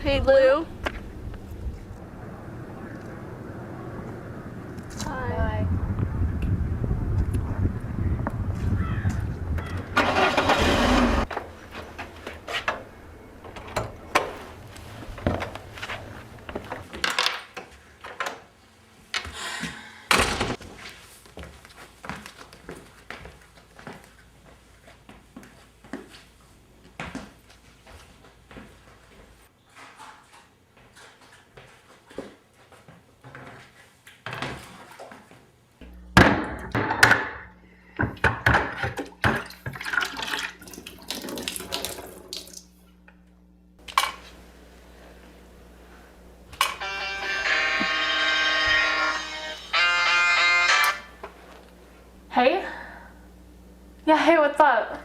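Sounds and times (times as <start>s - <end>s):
clattering and splashing: 38.4s - 42.7s.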